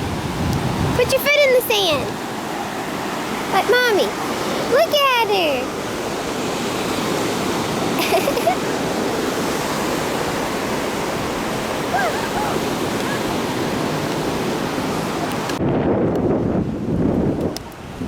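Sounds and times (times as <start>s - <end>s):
wind rumble on microphone: 0.0s - 2.3s, 8.9s - 18.0s
ocean surf washing ashore: 0.0s - 18.0s
faint cries: 11.8s - 13.4s.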